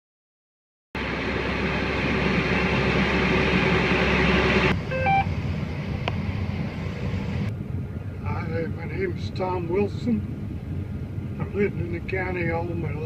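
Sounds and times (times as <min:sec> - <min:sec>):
machinery engine rushing: 0:01.0 - 0:13.0
short electronic beeps: 0:04.9 - 0:05.3.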